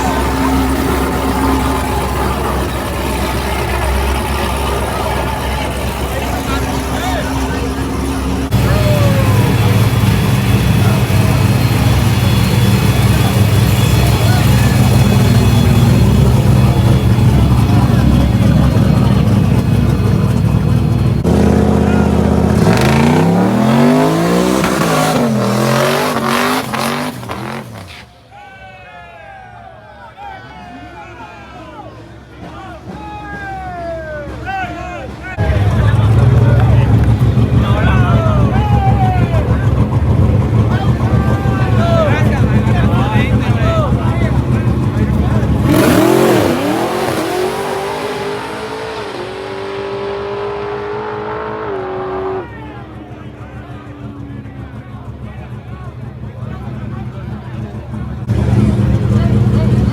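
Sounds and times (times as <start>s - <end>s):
drag racing car accelerating: 0.0s - 28.2s, 35.4s - 59.9s.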